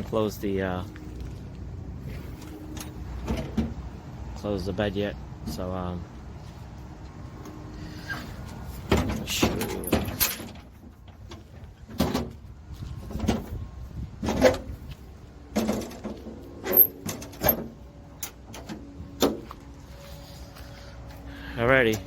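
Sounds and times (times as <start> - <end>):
metal gate clanks and latch knocks: 8.9 - 11.4, 15.5 - 19.4.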